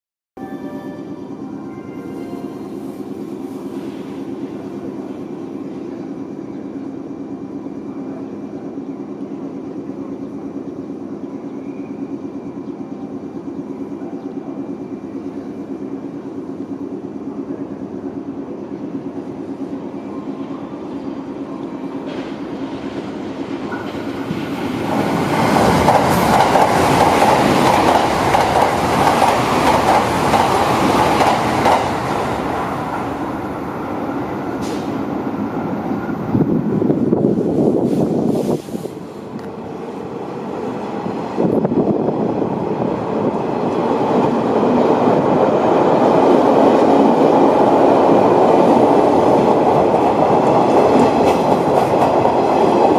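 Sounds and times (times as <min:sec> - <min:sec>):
electric train hum: 0:00.4 - 0:52.9
wheels rushing on rail: 0:00.5 - 0:52.9
rail joints clattering: 0:22.0 - 0:33.6, 0:43.6 - 0:52.9.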